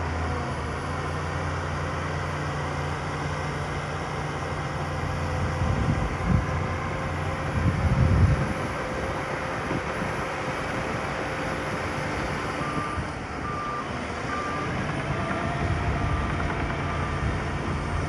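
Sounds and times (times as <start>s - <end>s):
vehicle engine running: 0.8s - 18.0s
reversing alarm beeping: 12.2s - 18.0s.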